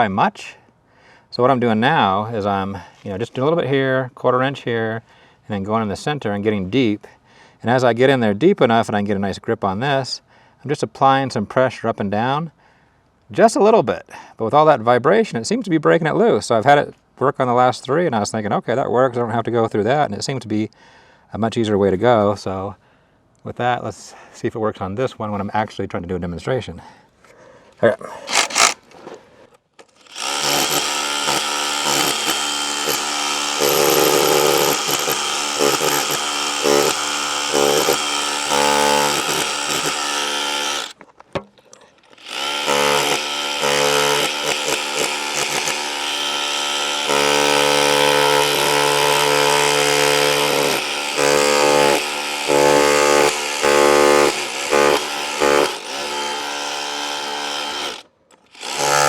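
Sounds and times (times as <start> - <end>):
rotary hammer chipping into wall: 30.2 - 41.5, 42.3 - 58.0, 58.6 - 59.0.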